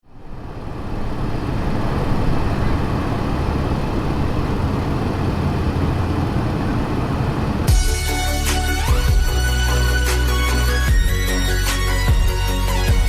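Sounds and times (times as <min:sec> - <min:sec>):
train rumbling: 0:00.1 - 0:13.0.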